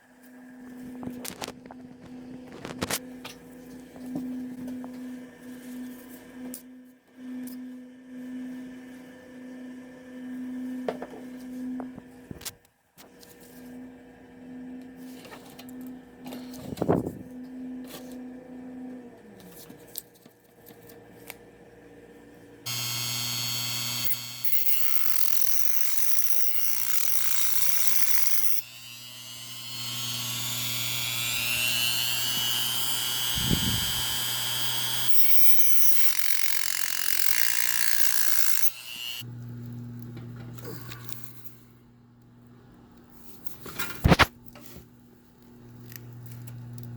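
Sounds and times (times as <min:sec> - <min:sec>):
power tool whining: 0:22.7 - 0:39.3.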